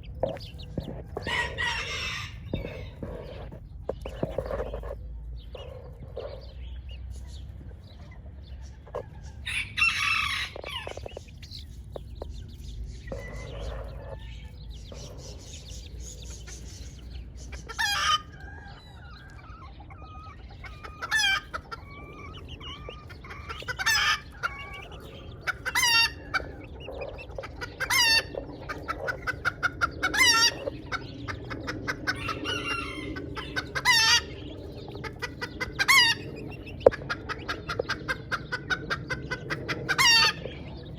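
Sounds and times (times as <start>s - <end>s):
chickens clucking: 0.0s - 40.9s
loud chicken call: 9.4s - 11.0s, 17.7s - 26.6s, 32.0s - 34.4s, 35.8s - 36.4s, 39.9s - 40.4s.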